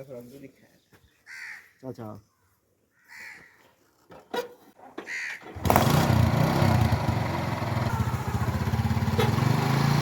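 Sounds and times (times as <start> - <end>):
crow cawing: 1.2 - 1.8, 2.9 - 3.6, 5.0 - 5.5
diesel engine running: 5.6 - 10.0.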